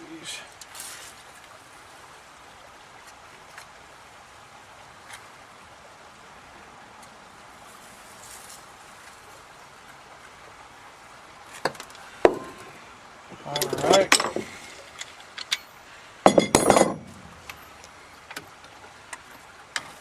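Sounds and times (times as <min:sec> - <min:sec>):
low background hiss: 0:00.0 - 0:20.0.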